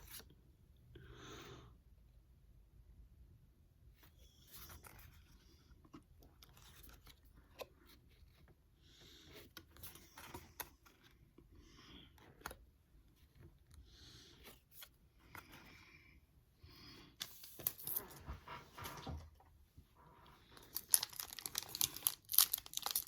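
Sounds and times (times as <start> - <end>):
trading cards rustling and clicking: 17.2 - 19.1, 20.5 - 23.0.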